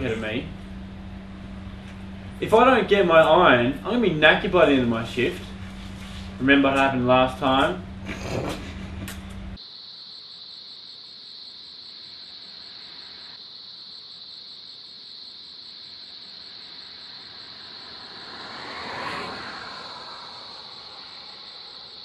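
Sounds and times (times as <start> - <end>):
insect chorus: 9.6 - 22.0
vehicle passing by: 17.1 - 22.0.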